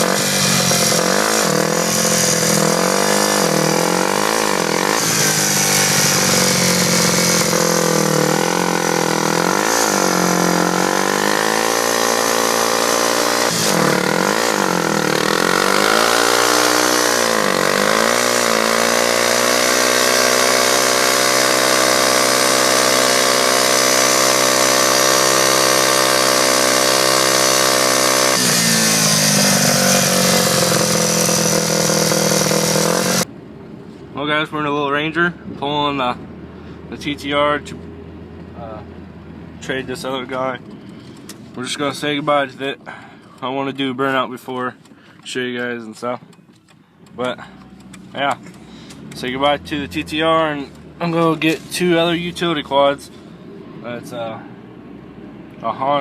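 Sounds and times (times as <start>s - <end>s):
dirt bike engine revving: 0.0s - 33.3s, 47.2s - 53.3s.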